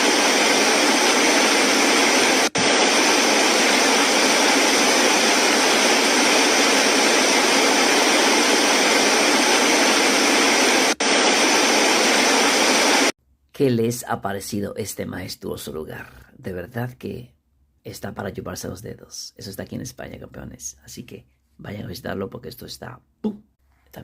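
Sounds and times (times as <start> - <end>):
waterfall roaring: 0.0 - 13.1.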